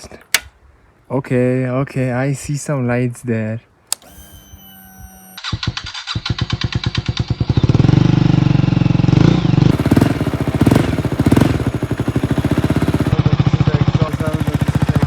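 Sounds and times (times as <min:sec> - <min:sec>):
motorcycle engine starting and revving: 0:03.9 - 0:15.0.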